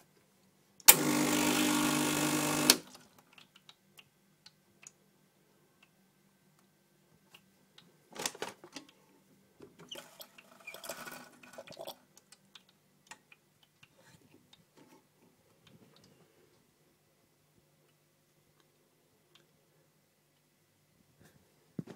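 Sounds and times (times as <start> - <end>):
espresso machine clicking and ticking: 0.9 - 2.8.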